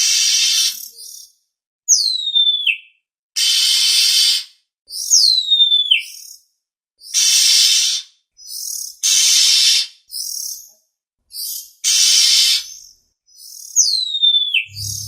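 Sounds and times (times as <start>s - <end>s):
bird chirps: 14.4s - 15.0s
bird harsh rasping notes: 14.7s - 15.0s.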